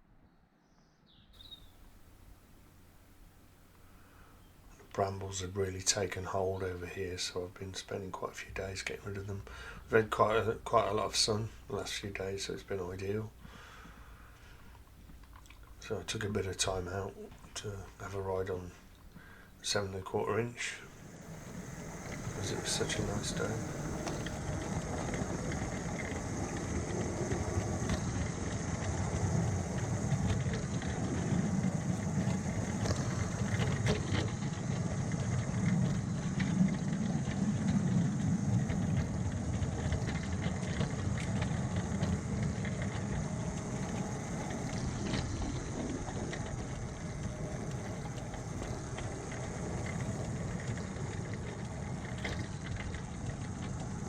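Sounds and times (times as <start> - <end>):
miniature train drive drone: 8.4 - 54.0.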